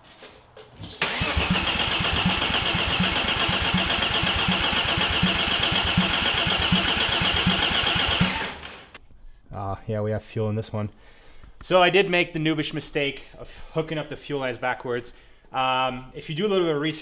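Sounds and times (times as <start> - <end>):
starter cranking engine: 1.0 - 9.0.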